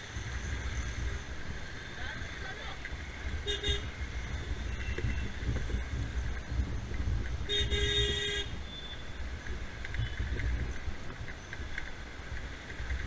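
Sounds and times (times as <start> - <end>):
traffic rumble: 0.0 - 13.0
vehicle horn honking: 3.4 - 4.0, 7.5 - 9.0.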